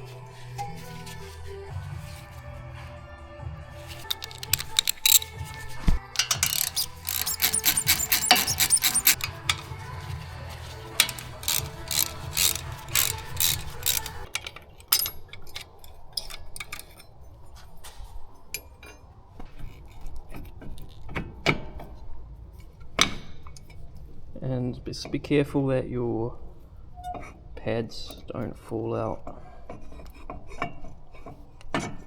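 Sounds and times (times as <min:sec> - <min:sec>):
background music: 0:00.0 - 0:14.4
metal tools clicking and clinking: 0:03.9 - 0:10.1, 0:10.7 - 0:17.2.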